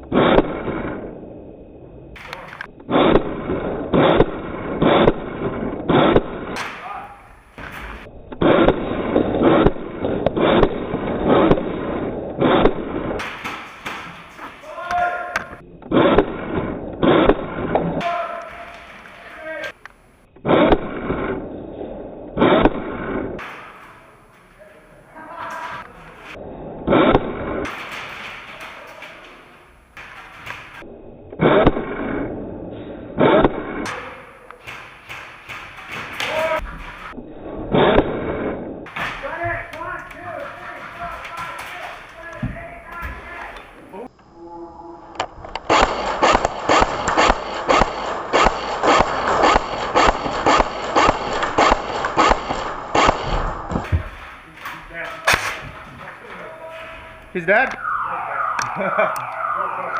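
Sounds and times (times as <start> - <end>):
airsoft rifle shots: 2.9 - 7.7, 33.2 - 37.1, 45.6 - 53.9, 55.2 - 55.6
airsoft gun shots: 45.7 - 53.8.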